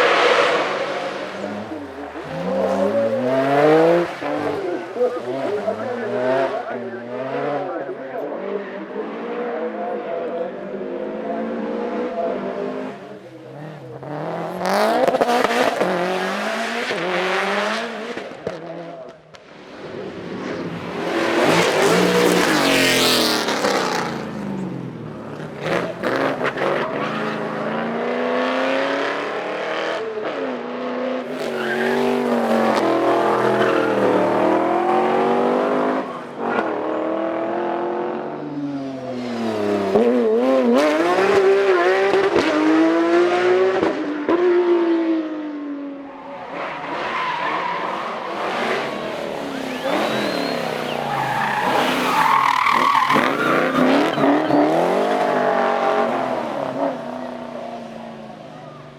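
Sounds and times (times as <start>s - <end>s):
tyres squealing and skidding: 0.0s - 7.8s, 20.8s - 24.8s, 31.3s - 36.6s, 46.1s - 58.9s
car engines revving hard: 0.0s - 58.9s.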